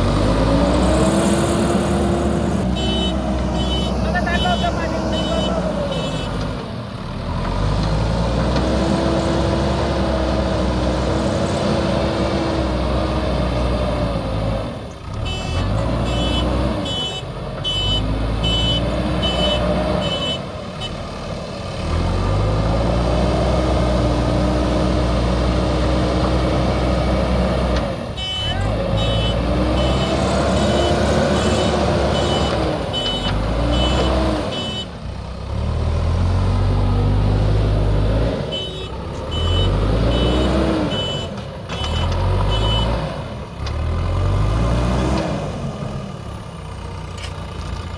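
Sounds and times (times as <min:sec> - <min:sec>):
diesel engine revving: 0:00.0 - 0:47.9
reversing alarm beeping: 0:38.7 - 0:43.0.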